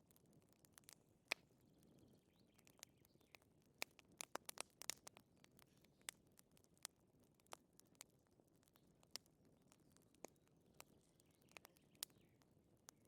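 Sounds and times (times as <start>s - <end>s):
faint wood fire crackling: 0.0s - 13.0s.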